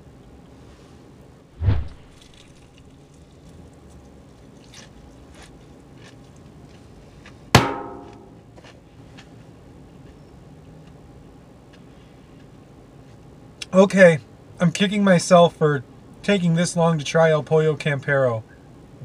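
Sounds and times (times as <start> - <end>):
biting and chewing crispy chicken: 2.2 - 7.6
sharp knock with ringing: 7.6 - 8.4.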